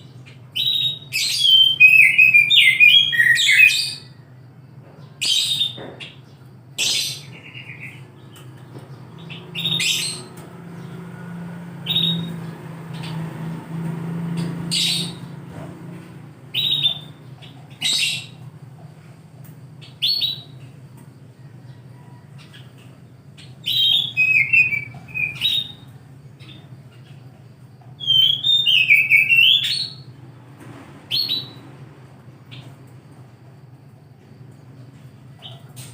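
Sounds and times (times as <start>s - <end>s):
magpie-robin singing: 0.1s - 4.1s, 6.8s - 11.0s, 11.8s - 13.2s, 14.4s - 15.4s, 16.5s - 18.4s, 19.8s - 20.6s, 23.4s - 27.2s, 28.0s - 30.1s, 31.1s - 31.6s.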